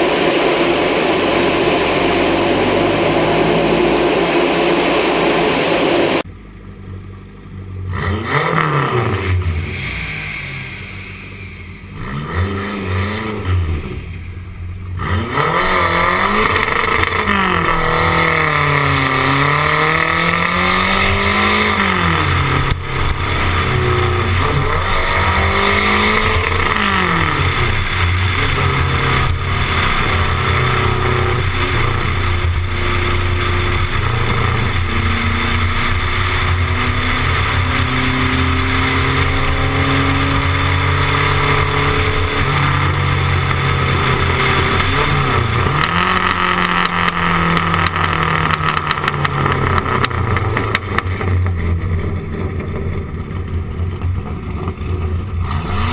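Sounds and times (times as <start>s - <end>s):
car engine accelerating hard: 0.0s - 55.9s.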